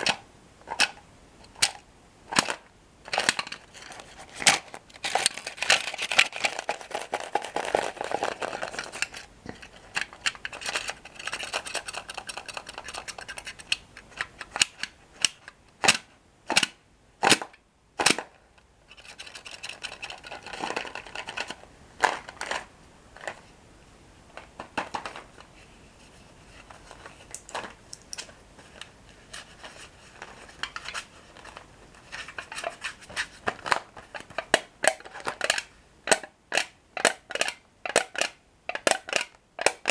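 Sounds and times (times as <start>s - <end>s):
crunching bread sticks: 2.3s - 13.8s.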